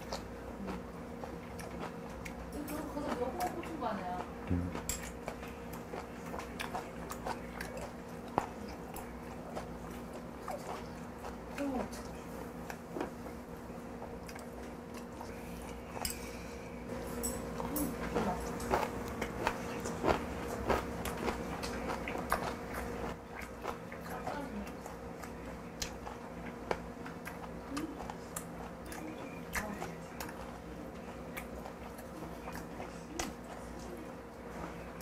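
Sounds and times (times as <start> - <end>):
low hum: 4.4 - 5.8
wet chewing and mouth smacks: 14.0 - 15.8, 17.6 - 33.6.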